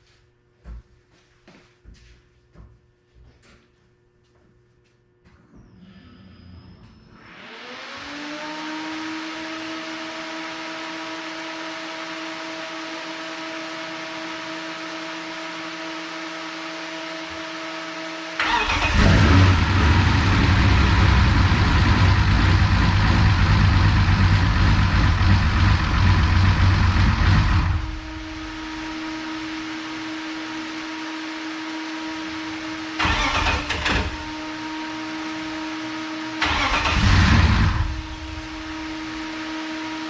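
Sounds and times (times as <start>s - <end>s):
steady hum: 10.5s - 40.0s
car engine cranking and running: 18.4s - 29.2s, 32.9s - 40.0s.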